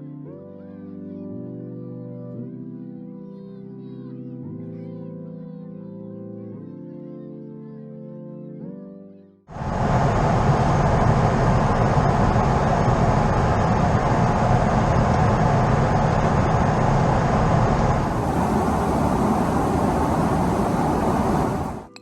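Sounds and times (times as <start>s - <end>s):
jet engine cabin roar: 9.5s - 22.0s.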